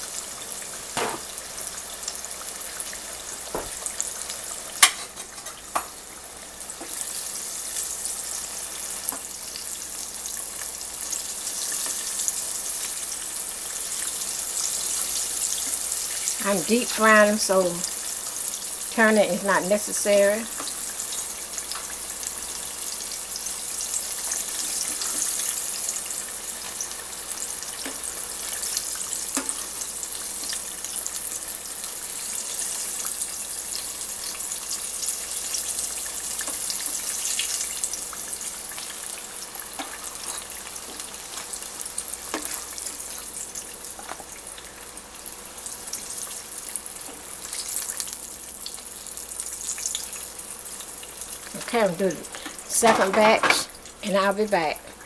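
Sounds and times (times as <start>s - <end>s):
deep-frying sizzle: 0.0s - 55.0s.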